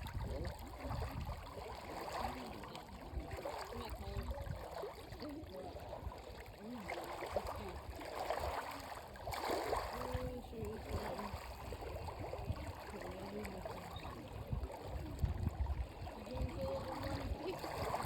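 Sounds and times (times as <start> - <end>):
shallow water sloshing: 0.0 - 18.0
wind rumble on microphone: 0.0 - 18.0
faint voices: 12.3 - 18.0.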